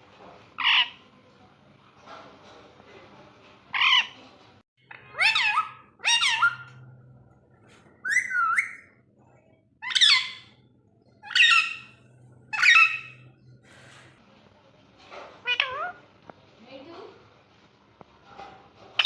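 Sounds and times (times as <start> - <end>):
parakeet calls: 0.6 - 1.0, 3.7 - 4.2, 4.9 - 6.8, 8.0 - 9.0, 9.8 - 10.6, 11.2 - 13.3, 15.4 - 16.0.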